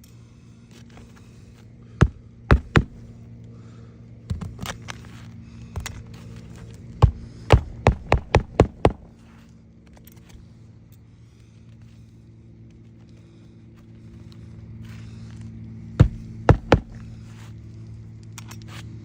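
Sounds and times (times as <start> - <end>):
steady low hum: 0.0 - 18.3
hammer striking roofing nails: 2.0 - 3.2, 7.0 - 9.2, 16.0 - 17.3.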